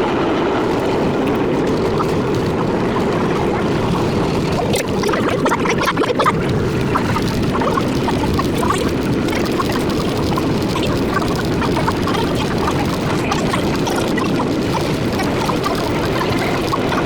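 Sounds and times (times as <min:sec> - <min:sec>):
subway train rumbling and rattling: 0:00.0 - 0:05.2.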